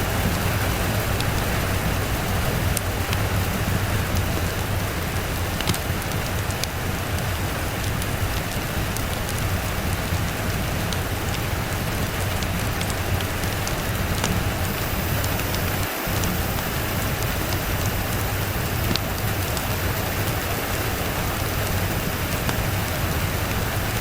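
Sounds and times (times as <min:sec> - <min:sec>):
rain falling on a surface: 0:00.0 - 0:24.0
steady low rumble: 0:00.0 - 0:24.0
sharp ticks: 0:00.1 - 0:23.8.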